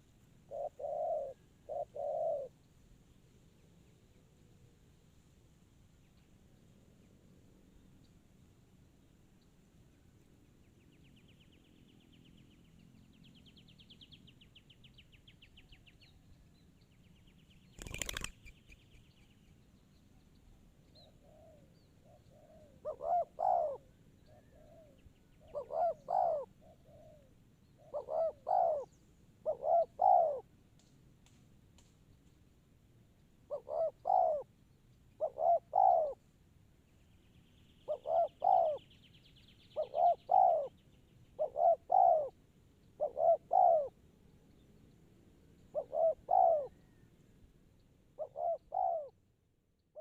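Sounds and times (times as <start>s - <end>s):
dove cooing: 0.4s - 2.6s, 17.8s - 18.3s, 21.1s - 30.5s, 33.5s - 34.5s, 35.2s - 36.2s, 37.9s - 38.8s, 39.8s - 40.7s, 41.4s - 42.4s, 43.0s - 44.0s, 45.7s - 47.0s, 48.2s - 49.2s.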